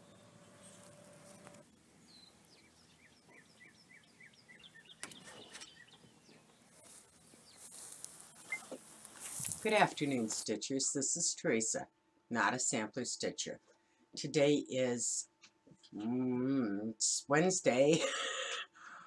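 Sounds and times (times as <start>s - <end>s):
bird chirping: 0.0s - 10.3s.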